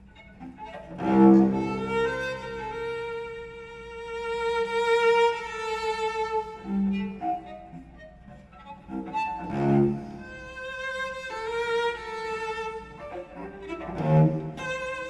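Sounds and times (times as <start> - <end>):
forceful cello bow stroke: 0.0 - 3.4, 4.6 - 15.0
bowed cello: 0.0 - 15.0.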